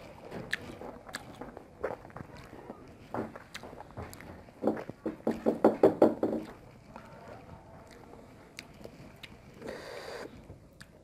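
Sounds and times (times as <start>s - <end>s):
person chewing: 0.0s - 5.0s, 7.8s - 11.0s
small mouth clicks: 7.8s - 11.0s.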